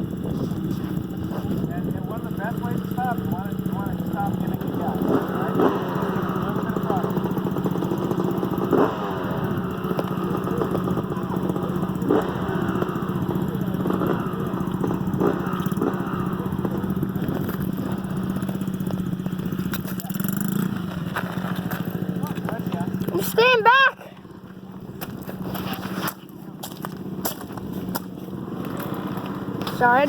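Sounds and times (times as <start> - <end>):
dirt bike engine running: 0.0 - 30.0.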